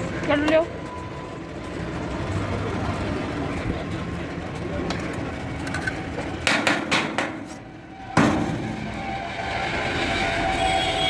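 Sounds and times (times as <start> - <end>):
steady background din: 0.0 - 11.0
sharp knocks: 6.4 - 7.6, 8.2 - 8.9.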